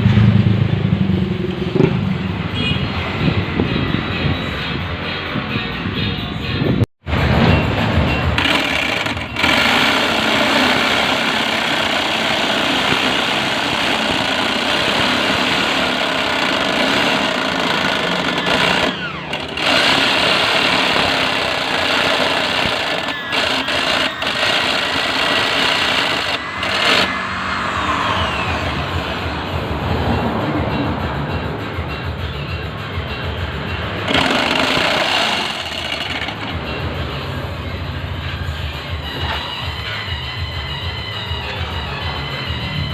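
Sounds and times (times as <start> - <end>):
electric jigsaw cutting plywood: 8.4 - 27.2, 27.8 - 28.8, 34.1 - 36.5.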